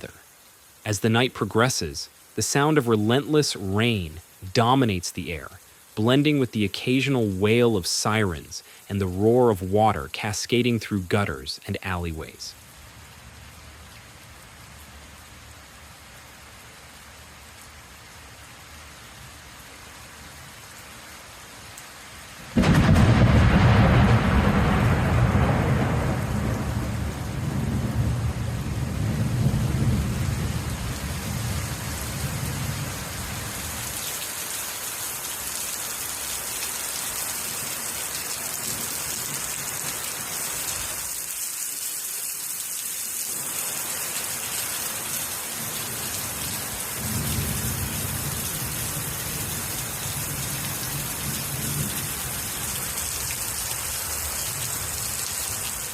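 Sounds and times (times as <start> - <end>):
heavy rain: 0.0 - 55.9
thunder rumbling: 22.6 - 33.3, 47.0 - 49.6.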